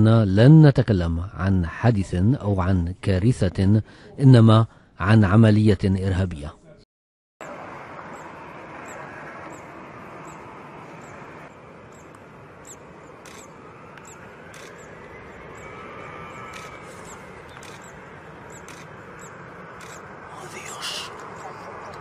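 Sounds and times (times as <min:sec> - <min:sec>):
outdoor background noise: 0:00.0 - 0:06.8, 0:07.4 - 0:22.0
faint rising and falling tone: 0:07.4 - 0:22.0
faint high chirp: 0:08.0 - 0:22.0.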